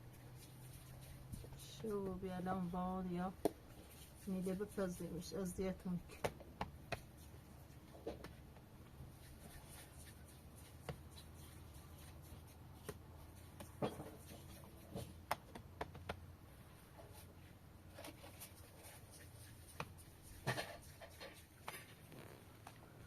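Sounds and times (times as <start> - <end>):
low steady hum: 0.0 - 23.0
faint clicks and taps: 12.8 - 16.2.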